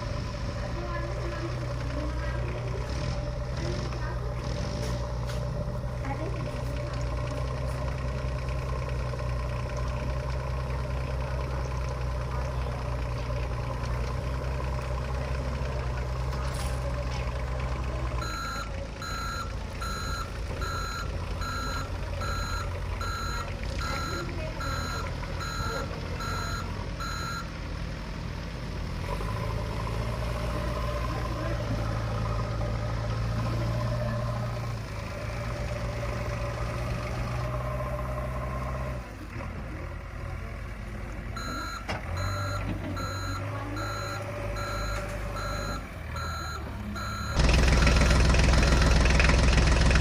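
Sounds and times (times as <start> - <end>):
low engine drone: 0.0 - 28.2, 28.8 - 50.0
reversing alarm beeping: 18.2 - 27.5, 41.4 - 49.1.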